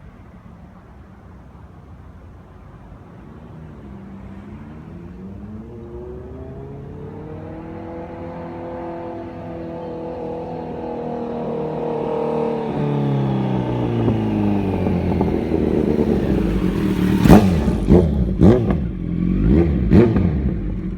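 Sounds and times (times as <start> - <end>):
motorcycle engine: 4.3 - 20.9
engine revving with cracks: 10.6 - 20.9.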